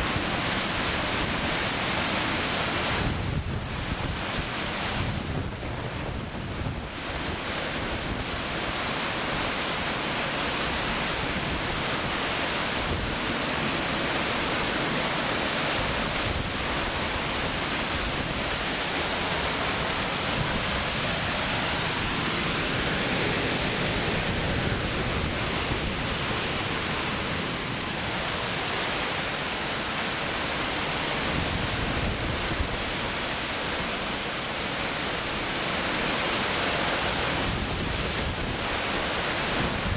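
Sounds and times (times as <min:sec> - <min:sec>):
strong wind buffeting microphone: 0:02.8 - 0:08.5, 0:15.8 - 0:29.0, 0:37.3 - 0:39.9.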